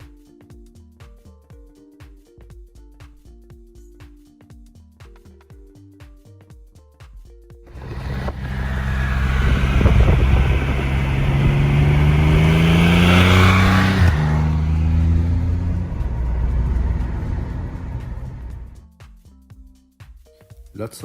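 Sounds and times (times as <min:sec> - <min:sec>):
motorcycle engine accelerating: 0:07.7 - 0:18.8.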